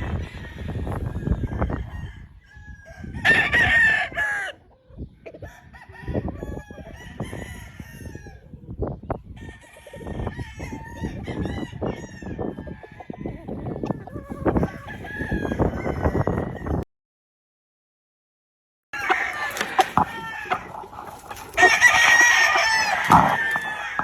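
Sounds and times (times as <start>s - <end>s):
rooster crowing: 0.0s - 4.6s, 5.5s - 8.4s, 14.1s - 16.8s, 19.0s - 24.0s
chickens clucking: 0.0s - 16.8s, 19.0s - 24.0s.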